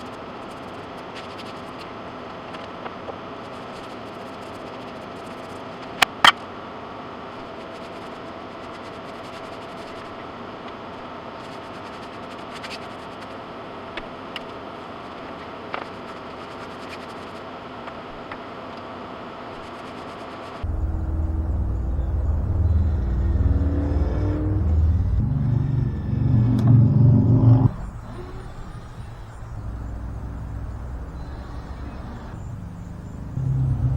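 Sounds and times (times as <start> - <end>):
motor or fan humming: 20.6 - 33.9.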